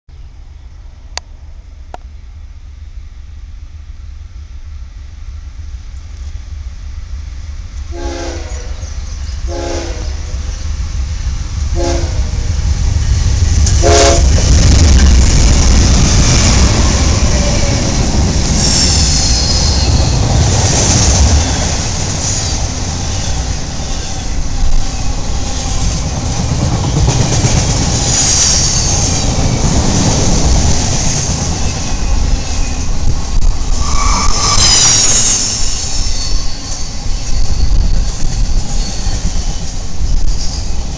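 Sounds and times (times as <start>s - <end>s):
freight train rumbling past: 0.1s - 40.9s
train horn blasts: 7.9s - 10.5s, 11.8s - 12.5s, 13.8s - 14.5s
high-pitched wheel squeal: 18.6s - 20.2s, 20.8s - 25.7s, 33.5s - 40.8s.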